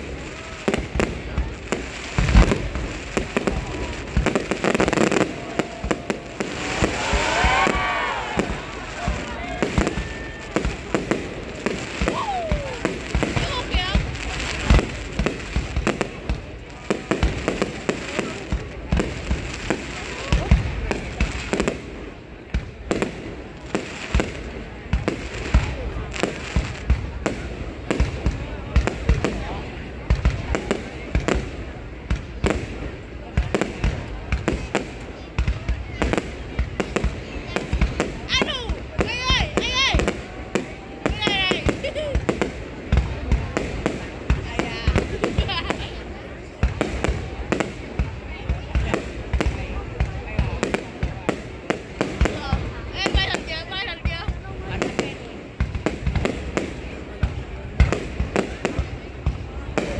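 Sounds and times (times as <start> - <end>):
deep firework boom: 0.0 - 21.6
fireworks bangs and crackles: 0.0 - 59.9
people's voices: 0.0 - 59.9.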